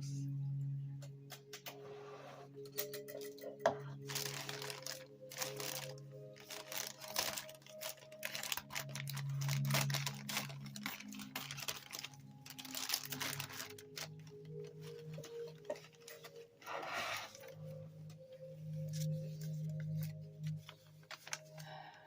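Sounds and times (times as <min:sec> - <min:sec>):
packing material crinkling and tearing: 0:04.0 - 0:17.8, 0:18.7 - 0:21.8.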